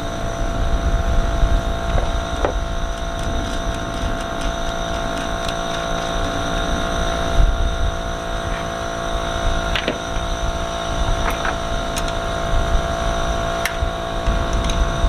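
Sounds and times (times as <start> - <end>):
mechanical hum: 0.0 - 15.0
clicks and knocks from handling parts: 1.9 - 6.5, 9.7 - 10.3, 11.2 - 12.3.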